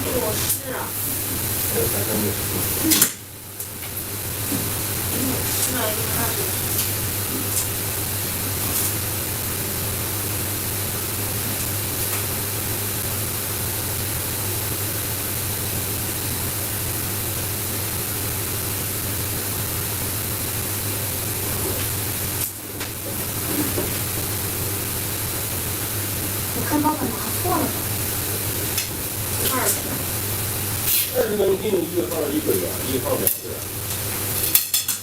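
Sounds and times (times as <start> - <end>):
steady hiss: 0.0 - 35.0.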